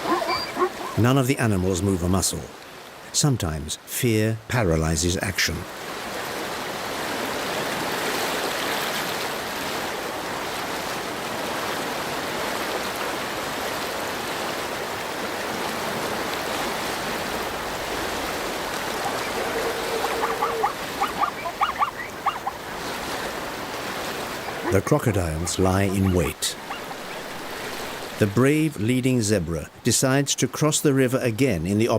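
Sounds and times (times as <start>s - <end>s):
short pitched animal calls: 0.0s - 1.0s, 18.8s - 22.7s, 24.3s - 27.2s
river water rushing: 0.0s - 3.3s, 5.7s - 30.0s.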